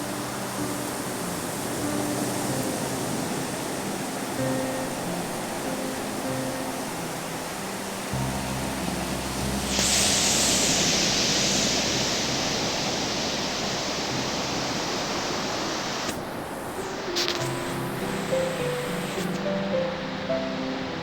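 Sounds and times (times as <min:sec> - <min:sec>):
hissing wash of surf: 0:00.0 - 0:21.0
wave breaking: 0:07.6 - 0:19.6.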